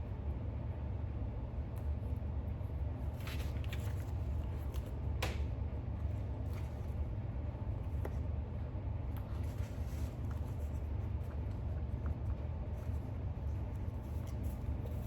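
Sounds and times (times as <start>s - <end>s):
room noise hum: 0.0s - 15.0s
book pages rustling: 3.1s - 5.0s, 9.1s - 15.0s.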